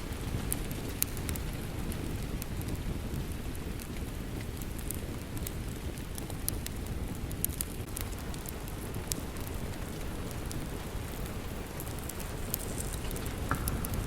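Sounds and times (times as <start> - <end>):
steady rain: 0.0 - 14.0
wood fire crackling: 0.0 - 14.0.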